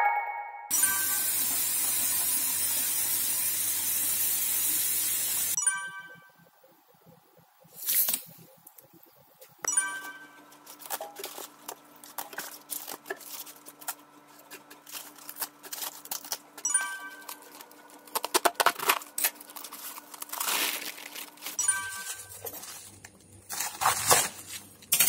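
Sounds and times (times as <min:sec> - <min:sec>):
bell-like chime effect: 0:00.0 - 0:01.6, 0:05.6 - 0:06.4, 0:09.7 - 0:10.4, 0:16.7 - 0:17.5, 0:21.6 - 0:22.4
cabbage leaves crackling torn: 0:10.7 - 0:16.6, 0:18.0 - 0:21.6, 0:22.6 - 0:24.9.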